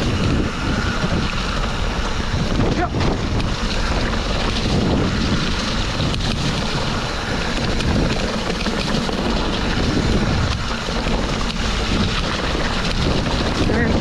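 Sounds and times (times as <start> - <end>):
bike rattling over ground: 0.0 - 14.0
wind rushing on microphone: 0.0 - 14.0.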